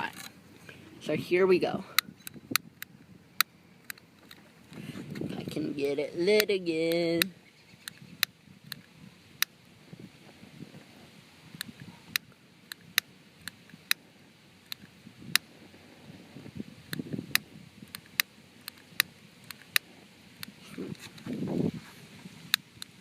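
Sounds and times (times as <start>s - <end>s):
lighter clicking: 16.9s - 20.6s
handling rustle: 18.0s - 22.9s.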